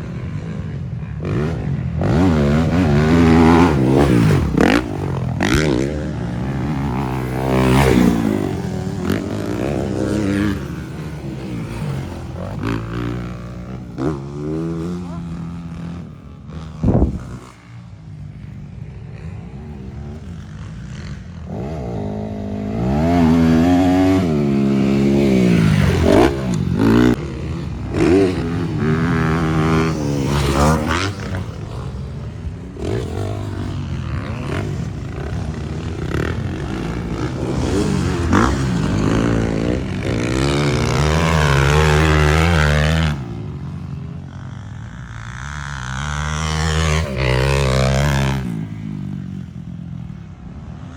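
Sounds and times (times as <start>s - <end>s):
dirt bike engines revving: 0.0s - 50.9s.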